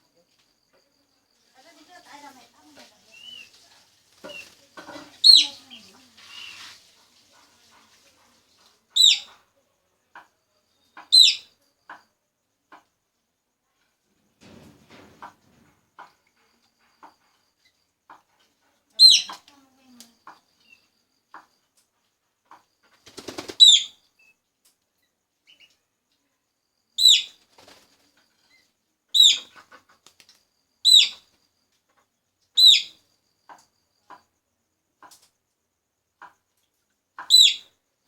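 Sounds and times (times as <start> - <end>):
faint ticks: 16.0 - 22.9.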